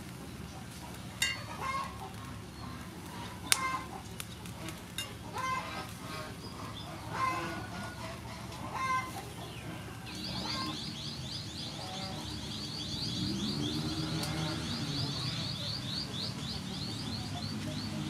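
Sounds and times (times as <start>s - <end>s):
bird chirping: 5.4s - 18.0s.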